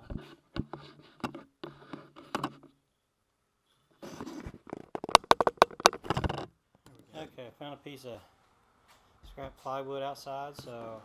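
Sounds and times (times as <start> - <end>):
camera handling knocks and clicks: 4.6 - 6.5.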